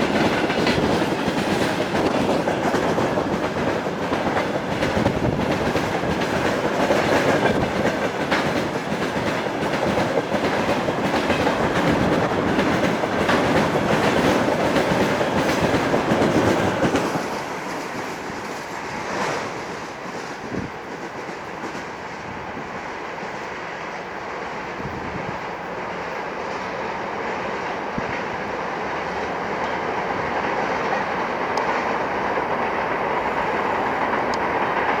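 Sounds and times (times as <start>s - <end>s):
train wheels clattering over joints: 0.0s - 23.8s
train rumble: 0.0s - 35.0s.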